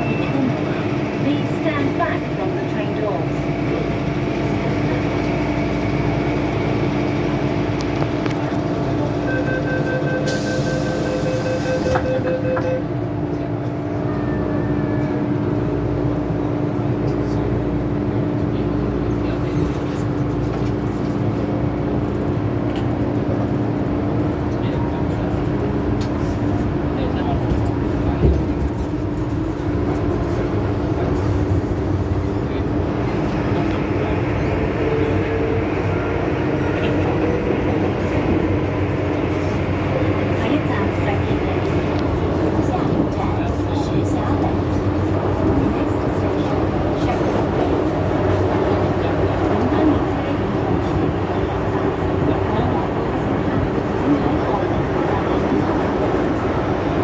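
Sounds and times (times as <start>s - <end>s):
train equipment hum: 0.0s - 57.0s
rapid pulsing warning beep: 9.2s - 12.9s.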